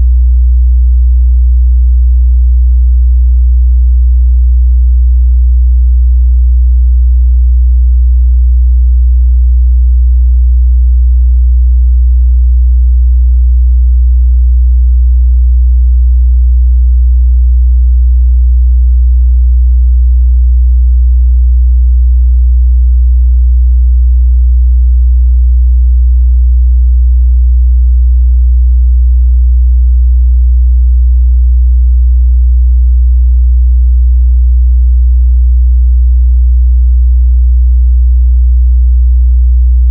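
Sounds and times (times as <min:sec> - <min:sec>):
deep bass test tone: 0:00.0 - 0:01.8.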